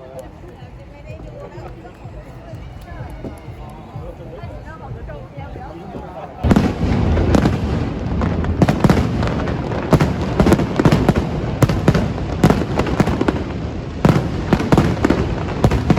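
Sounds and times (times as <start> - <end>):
fireworks bangs: 6.4 - 15.9
low rumble: 6.5 - 15.7.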